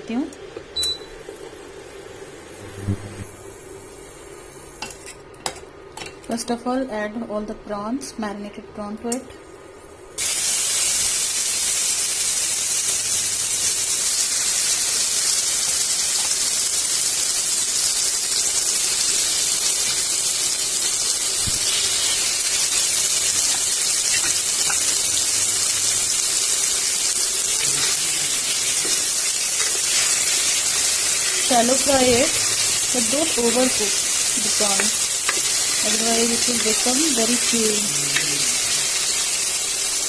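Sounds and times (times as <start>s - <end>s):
prawns sizzling in hot oil: 10.2s - 40.0s.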